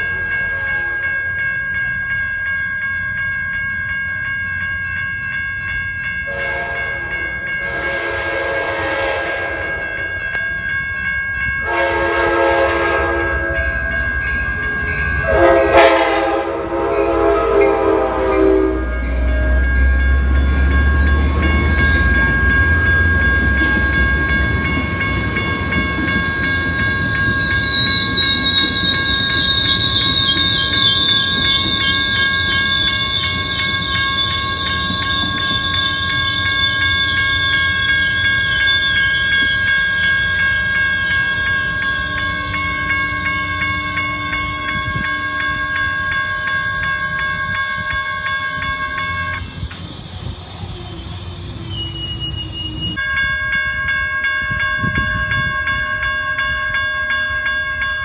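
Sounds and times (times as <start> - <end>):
train horn blasts: 0.0 - 1.2, 6.3 - 9.8, 11.6 - 13.8, 15.2 - 19.8
high ringing: 0.0 - 58.0
diesel locomotive rumbling past: 6.3 - 55.5
train wheel squeal: 17.0 - 57.8.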